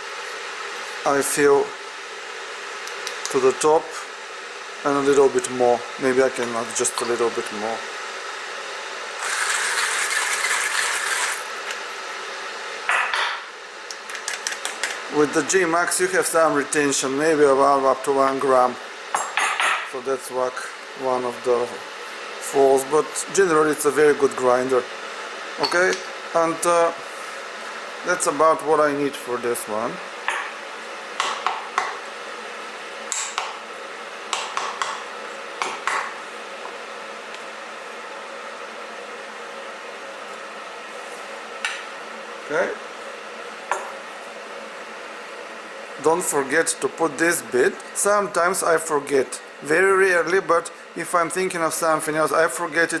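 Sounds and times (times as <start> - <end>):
electric kettle hissing: 0.0 - 53.0
grinder clatter: 9.2 - 11.5
hand coffee grinder crunching beans: 9.2 - 11.8.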